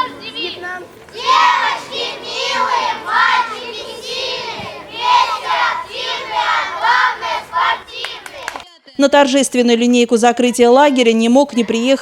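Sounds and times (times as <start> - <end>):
children chanting in unison: 0.0 - 8.6.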